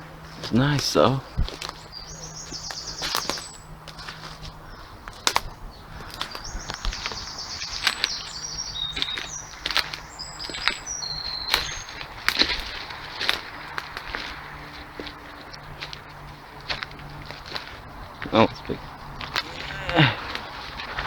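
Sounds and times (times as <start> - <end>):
footsteps snapping twigs: 0.2 - 21.0
songbird trilling and whistling: 1.5 - 12.6.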